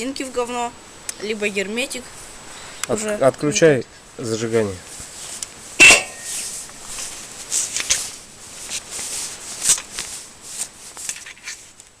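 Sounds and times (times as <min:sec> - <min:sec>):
light rustling and scuffing: 0:04.8 - 0:12.0.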